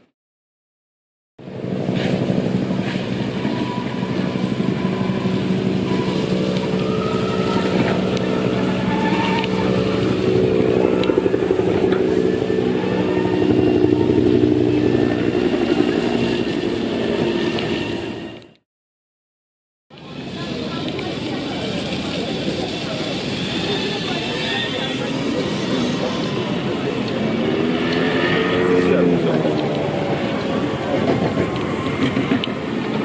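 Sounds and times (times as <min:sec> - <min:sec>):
motorized carts engine hum: 0:01.4 - 0:18.6.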